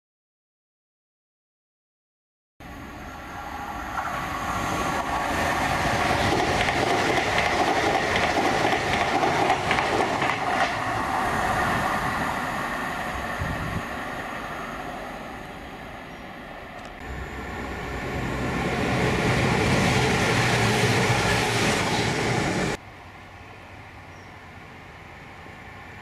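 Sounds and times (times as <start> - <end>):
train passing: 2.6 - 26.0
train wheels clicking: 4.8 - 11.2.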